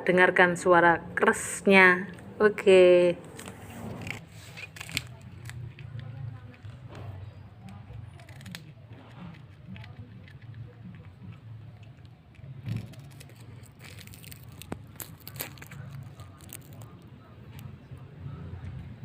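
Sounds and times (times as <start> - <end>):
cat chewing crunchy snack: 3.3 - 17.7.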